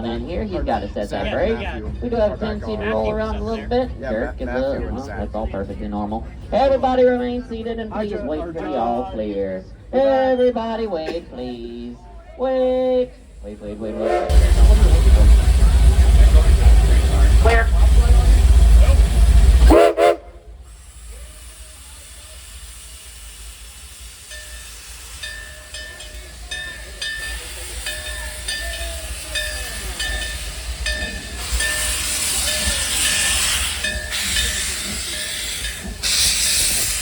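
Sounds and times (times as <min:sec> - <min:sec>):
steam hissing: 0:12.8 - 0:37.0.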